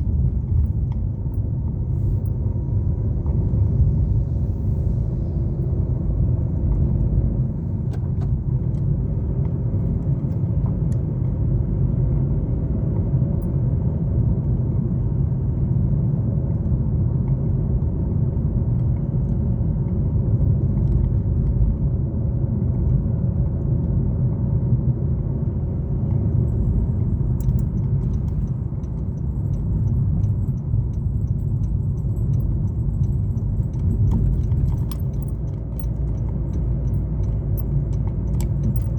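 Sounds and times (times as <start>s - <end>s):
car engine and tyre rumble: 0.0s - 38.9s
light clicking and jingling: 25.9s - 38.9s.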